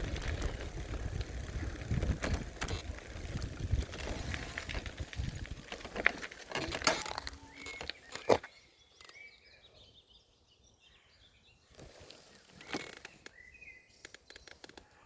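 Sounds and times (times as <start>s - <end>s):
handling noise and rustles: 0.0s - 9.2s
faint bird chirps: 7.0s - 15.0s.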